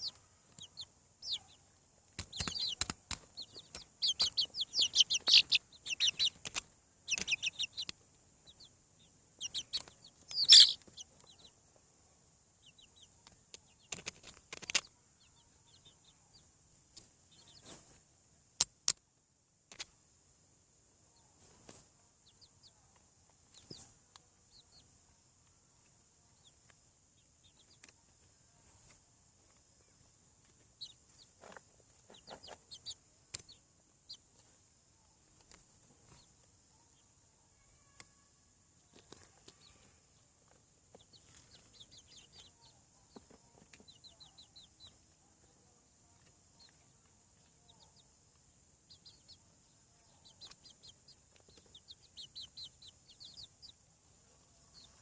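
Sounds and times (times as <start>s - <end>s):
chicks peeping and clucking: 0.0s - 19.0s, 21.3s - 55.0s
sharp clicks: 6.2s - 8.0s.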